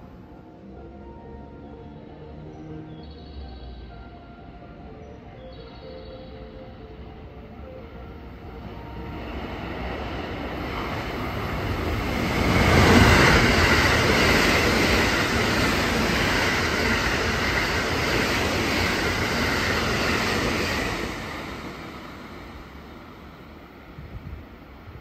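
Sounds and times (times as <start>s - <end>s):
electric train passing at speed: 0.0s - 25.0s
wheels rushing on rail: 8.6s - 25.0s.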